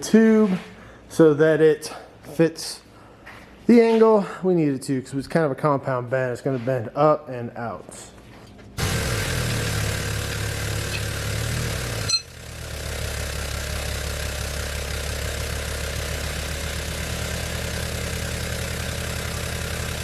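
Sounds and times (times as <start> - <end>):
tube bender motor running: 8.4 - 20.0.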